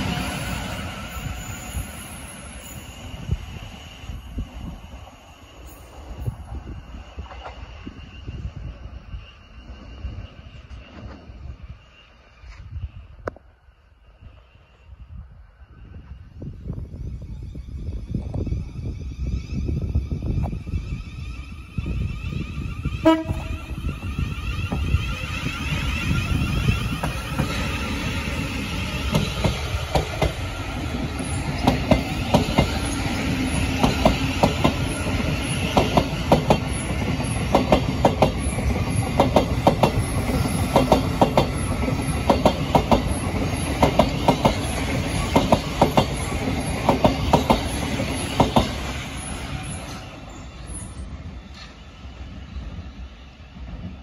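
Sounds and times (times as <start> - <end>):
train rumbling past: 0.0 - 54.0
wheels clickety-clack on rail joints: 5.6 - 11.5, 19.6 - 54.0.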